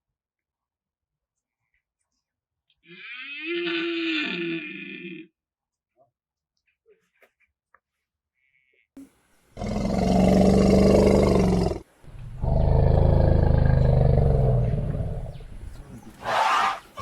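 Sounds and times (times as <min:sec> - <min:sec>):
big cat roaring: 0:09.6 - 0:16.8.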